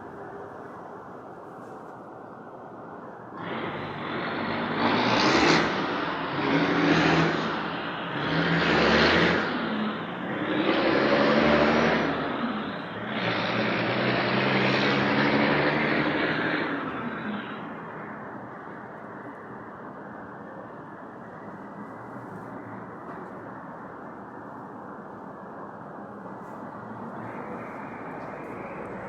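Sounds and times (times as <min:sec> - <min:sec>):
motor vehicles passing: 0:03.4 - 0:18.8, 0:26.3 - 0:29.0.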